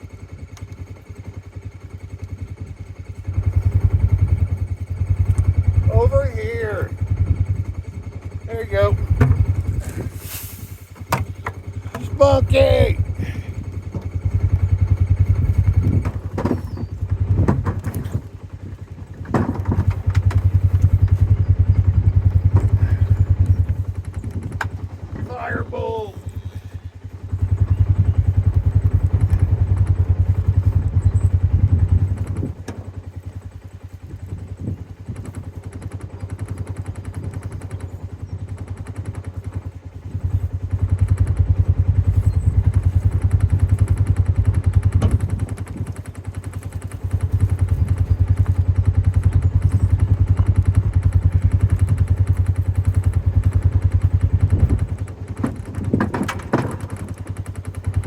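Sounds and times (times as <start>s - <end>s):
vehicle engine rumbling: 0.0s - 58.0s
knocks and clatter: 9.0s - 9.8s, 15.9s - 18.3s, 19.2s - 21.3s, 44.6s - 46.0s, 54.4s - 58.0s.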